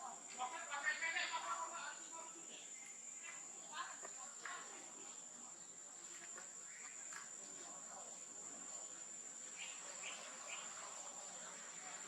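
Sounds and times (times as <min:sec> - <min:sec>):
short insect chirps: 0:00.0 - 0:04.0, 0:09.4 - 0:12.0.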